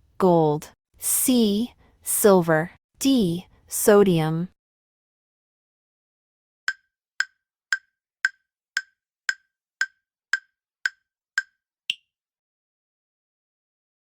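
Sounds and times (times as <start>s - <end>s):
timer ticking: 6.7s - 12.0s
high-pitched tick: 6.7s - 12.1s.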